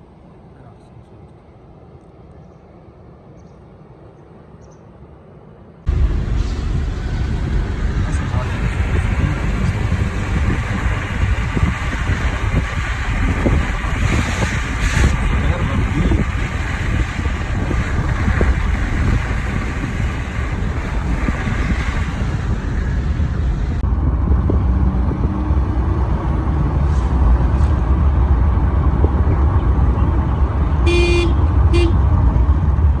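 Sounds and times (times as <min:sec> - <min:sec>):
low rumble of traffic: 0:00.0 - 0:33.0
vehicle horn beeps: 0:30.8 - 0:32.0.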